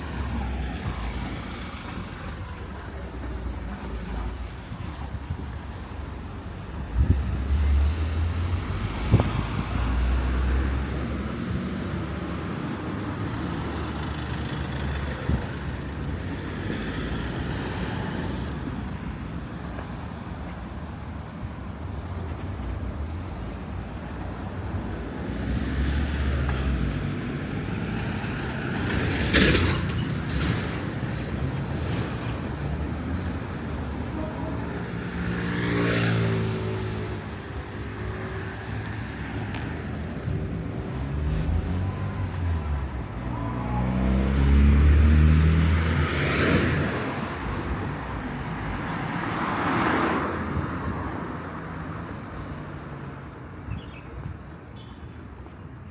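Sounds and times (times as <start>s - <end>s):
heavy low engine rumble: 0.0s - 7.2s
motor vehicles passing: 0.0s - 19.5s, 23.2s - 55.8s.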